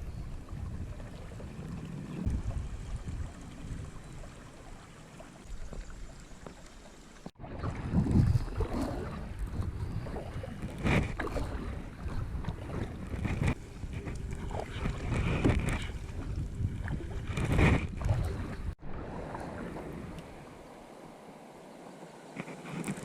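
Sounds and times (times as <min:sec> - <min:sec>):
wind on microphone: 0:00.0 - 0:04.6, 0:07.4 - 0:20.4
water sloshing with paddle strokes: 0:00.0 - 0:23.0
life jacket scratching camera: 0:17.3 - 0:18.0, 0:22.4 - 0:23.0.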